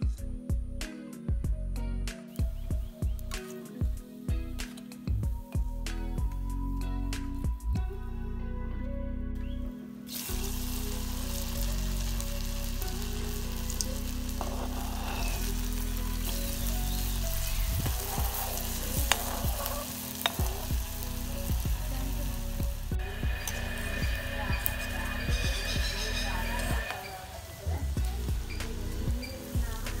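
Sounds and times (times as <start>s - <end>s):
food sizzling in oil: 10.1s - 30.0s
utensil clicking on pan: 18.6s - 20.6s.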